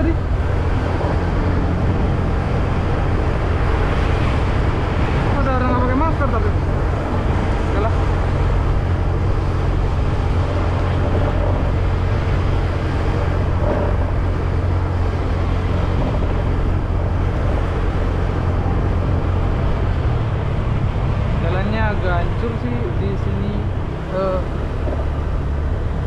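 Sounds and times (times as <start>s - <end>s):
motorcycle engine riding: 0.0s - 26.0s
road noise: 0.0s - 26.0s.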